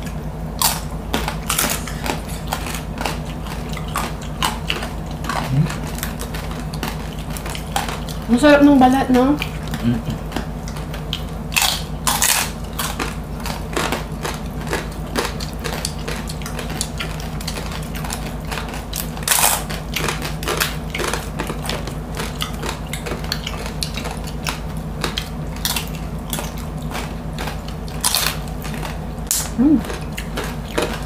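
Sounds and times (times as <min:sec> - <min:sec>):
crunching crispy skin: 0:00.6 - 0:08.4, 0:09.4 - 0:31.0.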